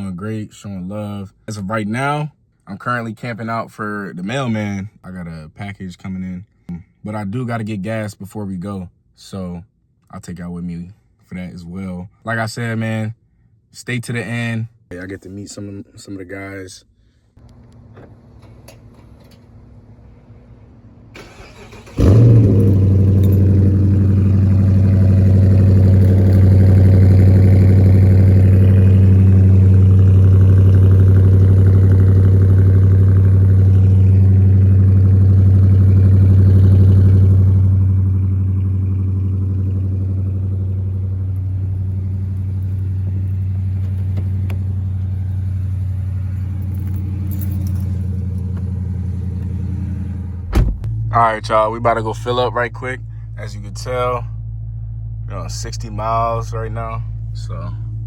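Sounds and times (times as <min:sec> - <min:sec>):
car engine starting and idling: 0:17.4 - 0:58.0.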